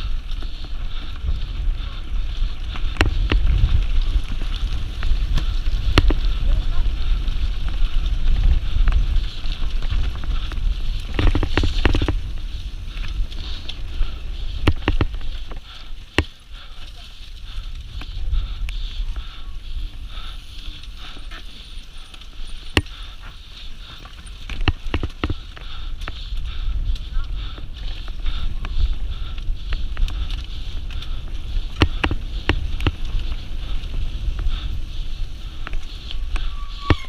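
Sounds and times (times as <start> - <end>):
wind buffeting microphone: 0.0 - 37.0
sharp clicks and knocks: 14.6 - 15.2.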